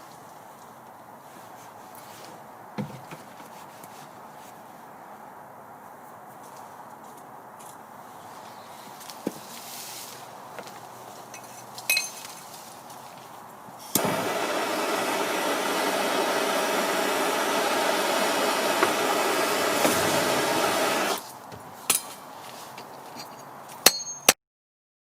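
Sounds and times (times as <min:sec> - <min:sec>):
metallic clinks: 0:11.3 - 0:12.5, 0:23.2 - 0:24.4
blowtorch flame roaring: 0:13.9 - 0:21.2.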